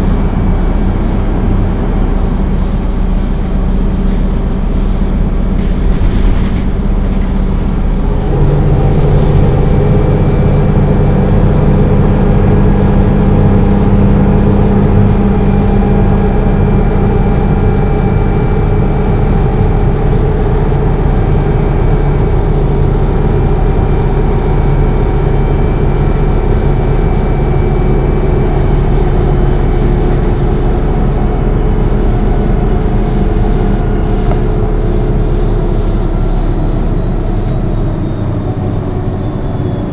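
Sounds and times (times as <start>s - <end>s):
bus diesel engine droning: 0.0s - 39.9s
road and wind noise: 0.0s - 39.9s.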